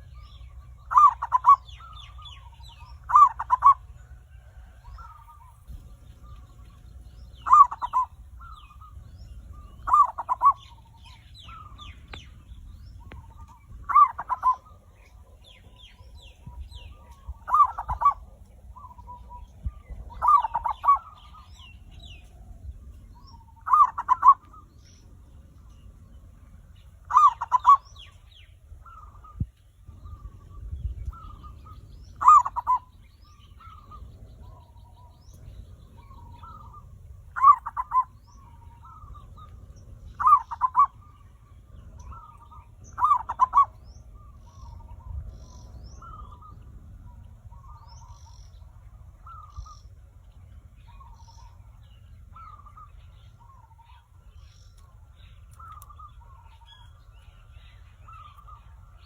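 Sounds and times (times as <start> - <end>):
dove cooing: 0.0 - 24.7, 27.0 - 28.2, 28.8 - 49.8
low hum: 0.0 - 59.0.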